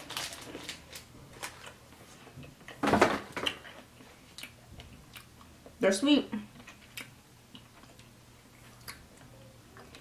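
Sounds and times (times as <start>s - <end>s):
person chewing candy: 3.4s - 5.7s, 6.5s - 10.0s.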